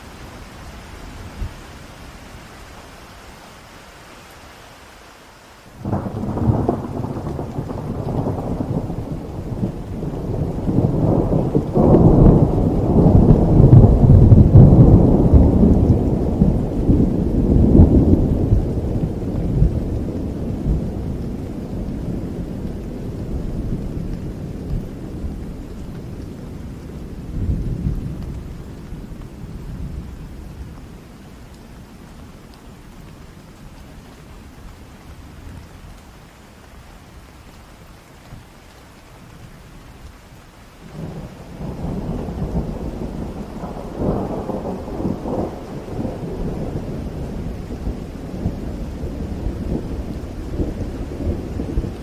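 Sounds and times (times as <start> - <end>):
steady rain: 0.0 - 52.0
rolling thunder rumble: 5.8 - 31.2, 40.9 - 52.0.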